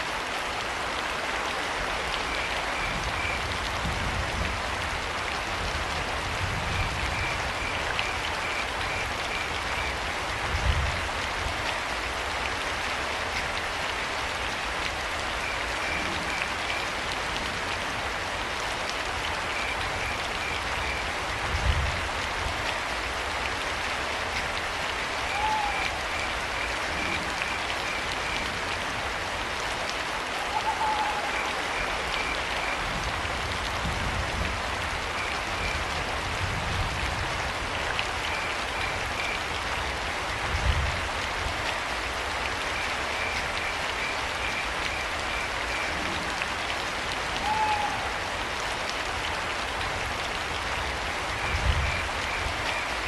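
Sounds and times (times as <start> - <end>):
rain pattering in a forest: 0.0 - 53.0
owl calling: 25.3 - 26.0, 30.4 - 31.9, 47.4 - 48.1.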